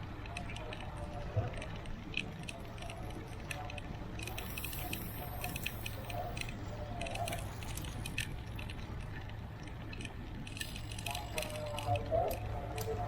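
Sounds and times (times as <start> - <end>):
bicycle rattling and clicking: 0.0 - 13.0.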